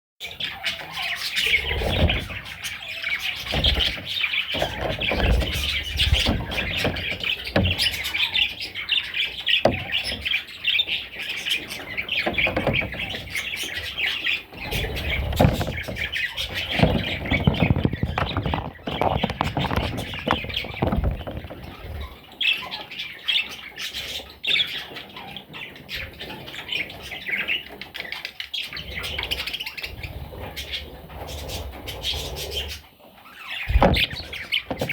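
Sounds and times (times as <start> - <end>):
low thumps: 14.7 - 22.0, 33.7 - 34.9.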